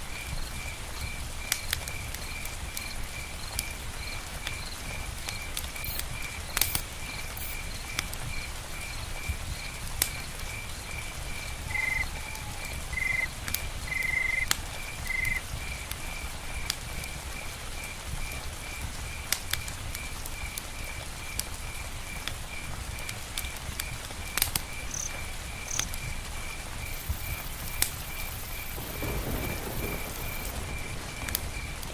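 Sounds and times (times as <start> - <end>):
campfire rumble: 0.0 - 31.9
crickets chirping: 0.0 - 31.9
rain: 0.0 - 31.9
animal calls: 11.5 - 15.4.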